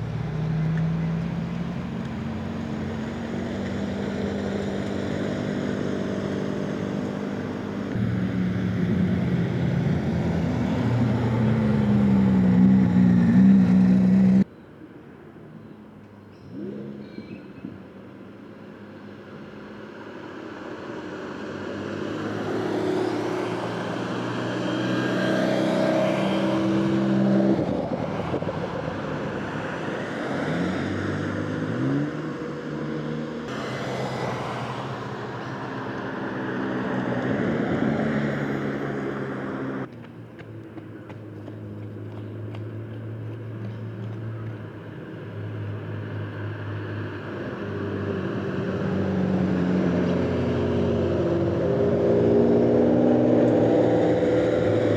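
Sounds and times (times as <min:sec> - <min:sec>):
engine revving: 0:07.4 - 0:14.5, 0:46.0 - 0:54.9
sports cars driving past: 0:19.0 - 0:54.9.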